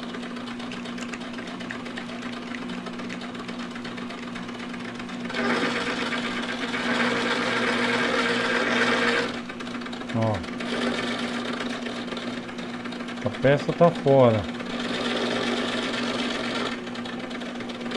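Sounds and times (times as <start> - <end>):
lathe motor hum: 0.0 - 17.9
loud rough machining noise: 5.2 - 16.9.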